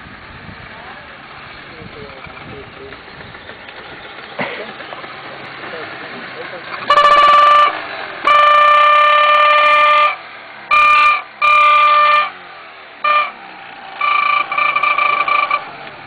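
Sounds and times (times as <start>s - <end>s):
moped engine running quietly: 0.0s - 8.4s
trumpet horn blasts: 6.9s - 12.4s, 13.0s - 15.7s.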